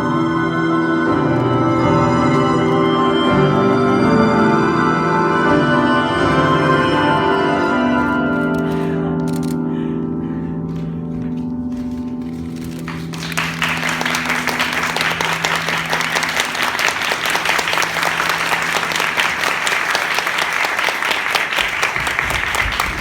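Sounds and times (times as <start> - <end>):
held musical chord: 0.0 - 21.4
audience applauding: 12.4 - 23.0.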